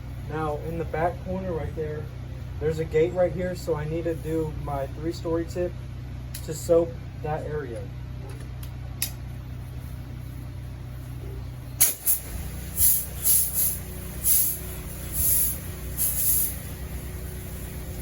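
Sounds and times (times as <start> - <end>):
pressure washer engine running: 10.6 - 18.0
hissing bursts of spray: 11.8 - 18.0.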